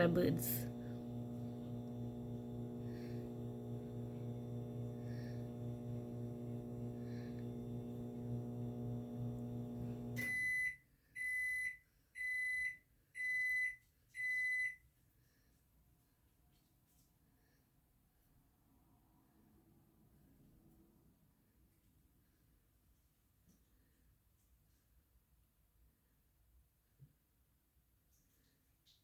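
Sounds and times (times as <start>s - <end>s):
microwave oven humming: 0.0s - 10.7s.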